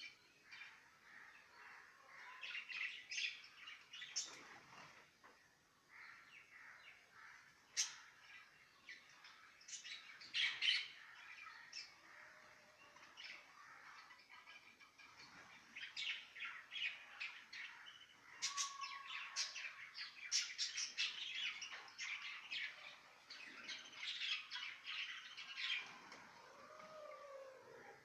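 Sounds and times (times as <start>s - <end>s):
parrots chirping and squawking: 16.6s - 25.8s.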